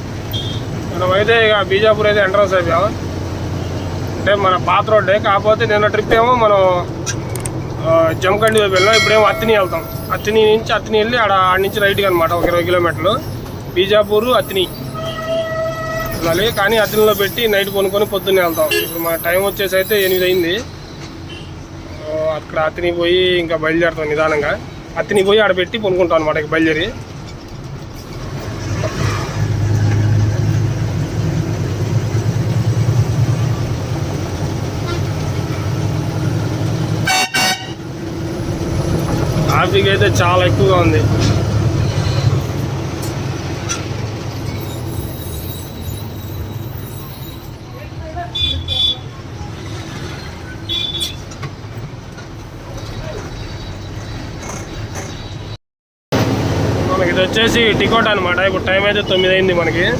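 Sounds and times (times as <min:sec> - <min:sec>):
lorry diesel engine under load: 0:00.0 - 0:48.3, 0:56.1 - 0:59.9
vehicle horn toot: 0:00.3 - 0:00.7, 0:08.7 - 0:10.4, 0:14.7 - 0:17.3, 0:18.5 - 0:19.2, 0:37.0 - 0:37.8, 0:48.3 - 0:49.1, 0:50.6 - 0:51.2.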